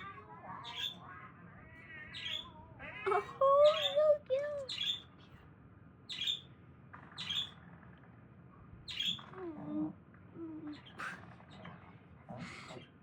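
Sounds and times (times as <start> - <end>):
finch chirping: 4.6 - 5.1, 6.1 - 6.5, 7.2 - 7.6, 8.9 - 9.2.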